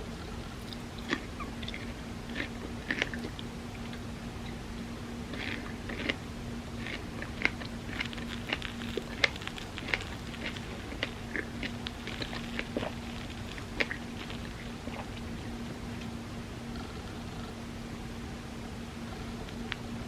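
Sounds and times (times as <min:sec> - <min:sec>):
faint steady hum: 0:00.0 - 0:20.0
chewing and wet mouth clicks: 0:00.2 - 0:04.1, 0:05.3 - 0:06.2, 0:06.8 - 0:15.5.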